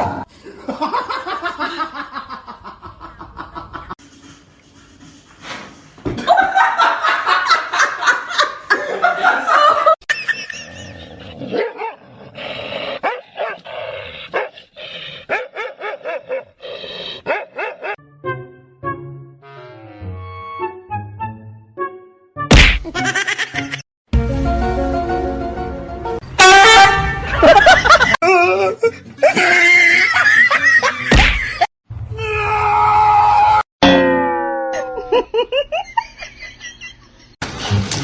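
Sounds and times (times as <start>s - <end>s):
people laughing: 0.5s - 4.0s, 6.2s - 11.3s, 27.1s - 31.7s
dog barking and yipping: 13.0s - 13.6s, 14.3s - 14.5s, 15.3s - 16.6s, 17.2s - 18.0s.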